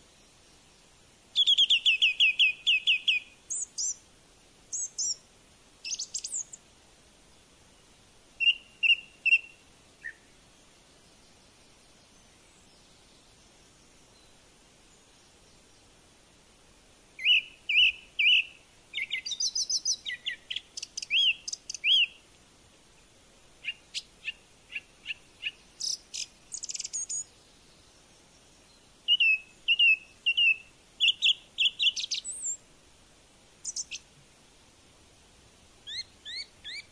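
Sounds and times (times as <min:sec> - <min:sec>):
bird chirping: 0:00.1 - 0:04.0, 0:04.7 - 0:05.2, 0:05.8 - 0:06.6, 0:08.4 - 0:16.0, 0:17.2 - 0:22.2, 0:23.6 - 0:32.6, 0:33.6 - 0:34.1, 0:35.8 - 0:36.9.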